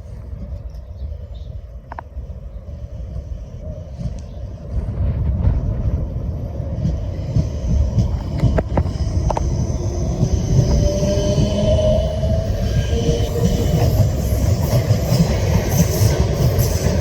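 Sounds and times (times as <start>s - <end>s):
train rumbling: 0.0s - 17.0s
train wheel squeal: 8.8s - 17.0s.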